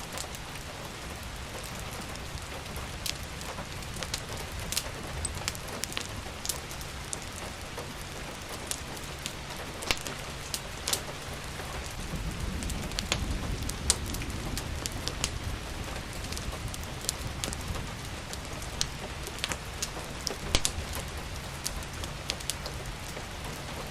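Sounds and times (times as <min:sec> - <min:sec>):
rain falling: 0:00.0 - 0:23.9
wood fire crackling: 0:00.0 - 0:23.9.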